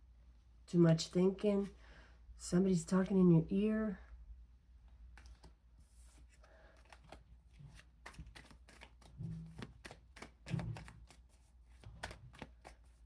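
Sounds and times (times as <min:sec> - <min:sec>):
cards being shuffled: 0:05.1 - 0:13.0.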